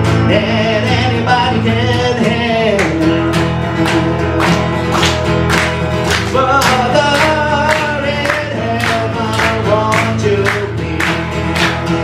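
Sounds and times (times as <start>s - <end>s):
live blues instruments: 0.0s - 12.0s
person singing: 6.2s - 11.3s.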